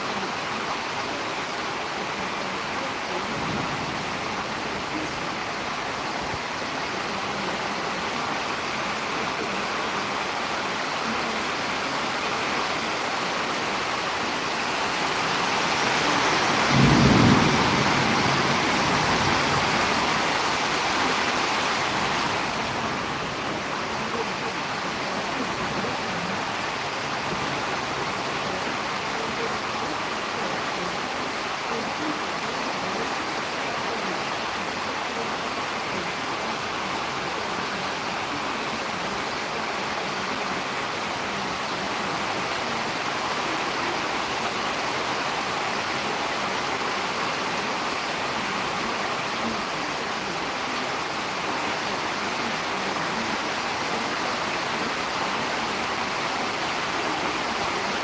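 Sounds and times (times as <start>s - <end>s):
storm wind rushing: 15.4s - 20.8s.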